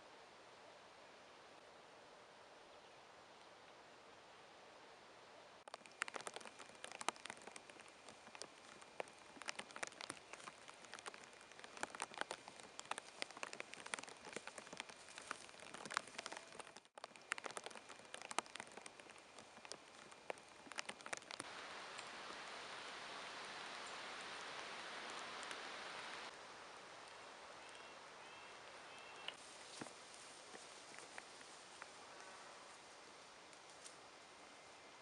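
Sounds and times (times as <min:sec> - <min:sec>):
rain hiss: 0:05.1 - 0:35.0
raindrops ticking: 0:05.7 - 0:26.4.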